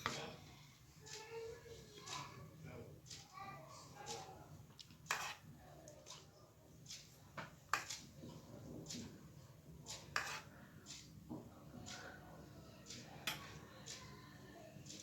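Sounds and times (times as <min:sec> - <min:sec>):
utensil scraping a dish: 0:05.0 - 0:06.2, 0:09.9 - 0:11.1.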